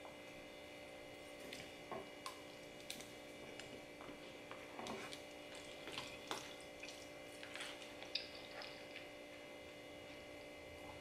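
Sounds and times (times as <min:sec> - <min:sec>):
faint steady hum: 0:00.0 - 0:11.0
wet chewing sounds: 0:01.3 - 0:09.8.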